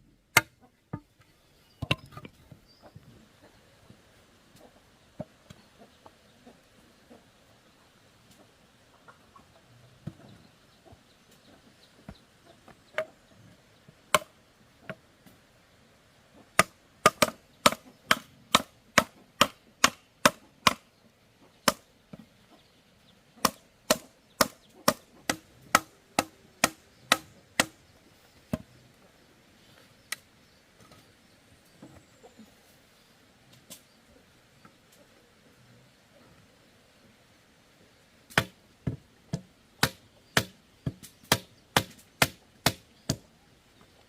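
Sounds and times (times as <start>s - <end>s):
bamboo chopped with a blade: 14.1s - 14.3s, 16.6s - 20.8s, 23.4s - 27.8s, 38.3s - 38.6s, 39.4s - 43.2s.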